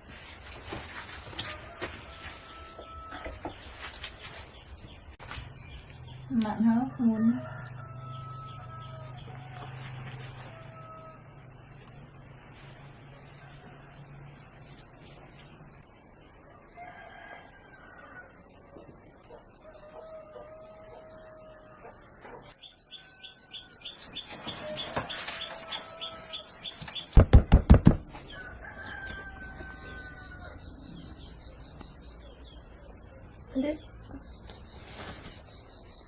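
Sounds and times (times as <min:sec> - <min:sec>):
insects whining: 0:00.0 - 0:36.0
roosters crowing: 0:00.7 - 0:04.3, 0:06.6 - 0:11.6, 0:16.4 - 0:18.7, 0:19.4 - 0:27.2, 0:28.0 - 0:31.3
loud knocks: 0:27.1 - 0:28.2.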